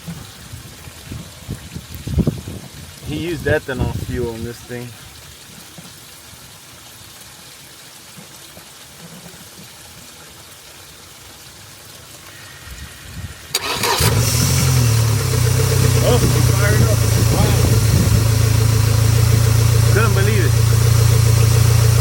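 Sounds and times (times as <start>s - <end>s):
outboard engine starting and idling: 13.5s - 22.0s.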